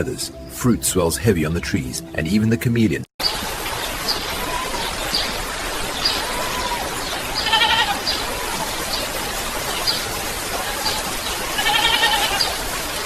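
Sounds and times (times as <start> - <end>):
rain hiss: 3.2 - 13.0.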